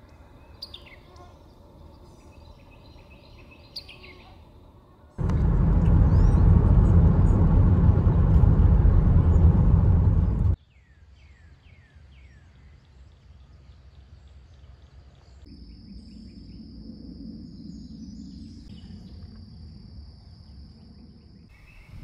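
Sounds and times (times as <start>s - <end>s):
low rumble: 5.2s - 10.6s.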